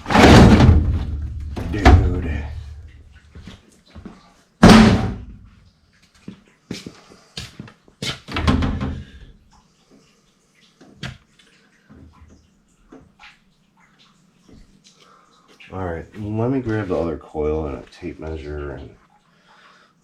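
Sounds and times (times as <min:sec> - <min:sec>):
sheet metal knocks and bangs: 0:00.0 - 0:03.1, 0:04.6 - 0:05.5.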